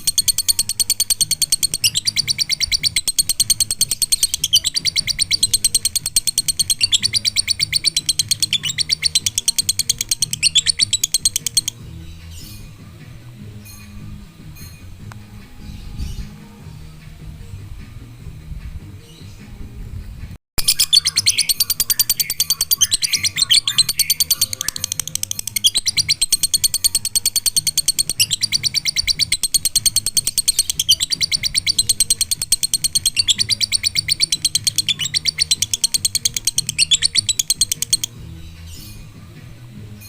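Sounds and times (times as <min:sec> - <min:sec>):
lovebird rapid shrill chirps: 0:00.0 - 0:11.8, 0:20.6 - 0:39.0.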